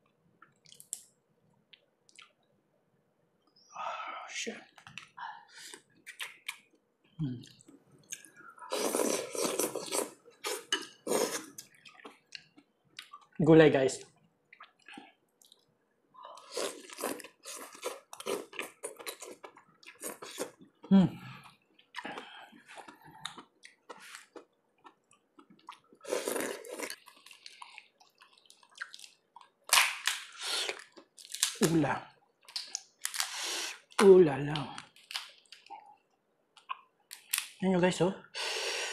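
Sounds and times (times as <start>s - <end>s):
mouth clicks and smacks: 1.7s - 2.5s, 36.6s - 37.5s
person chewing wetly: 7.4s - 13.4s, 14.5s - 15.7s, 16.3s - 29.8s.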